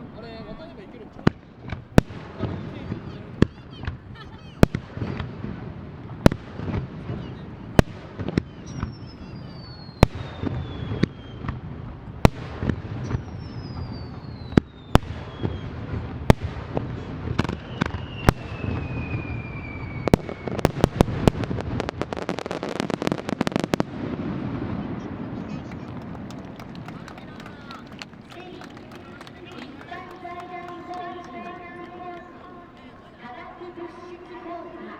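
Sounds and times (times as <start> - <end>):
falling firework whistles: 7.2 - 11.6, 13.0 - 16.4, 17.4 - 21.4.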